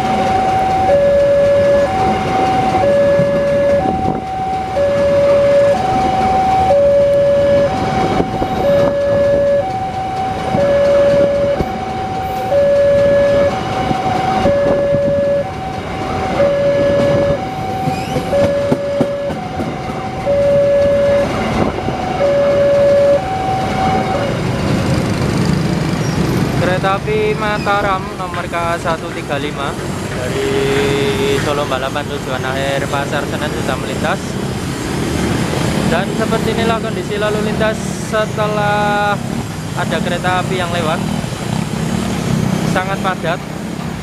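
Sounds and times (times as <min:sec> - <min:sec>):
two-tone level-crossing alarm: 0:00.0 - 0:24.5
train wheels clicking over rail joints: 0:00.0 - 0:44.0.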